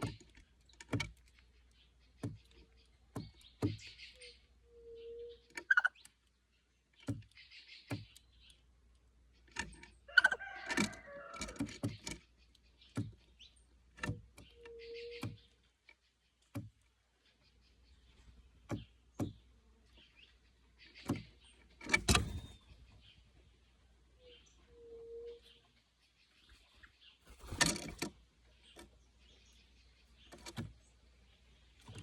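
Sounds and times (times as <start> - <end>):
sharp knocks and taps: 2.2 - 3.9, 12.9 - 13.2, 18.7 - 19.4.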